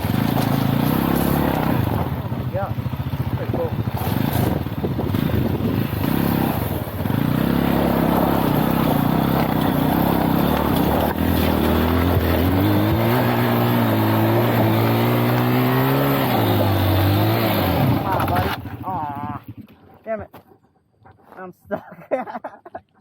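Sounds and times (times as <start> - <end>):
motorcycle engine running: 0.0 - 20.1.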